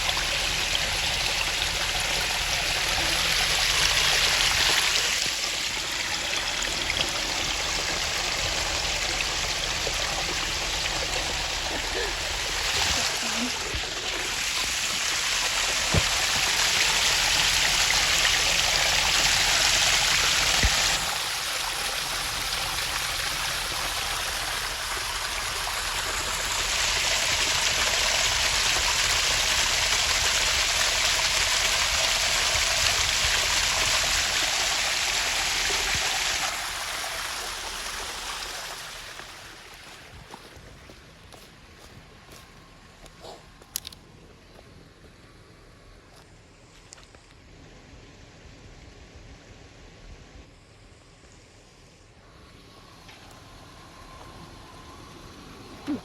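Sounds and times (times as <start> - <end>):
small waterfall splashing over rocks: 0.0 - 41.0.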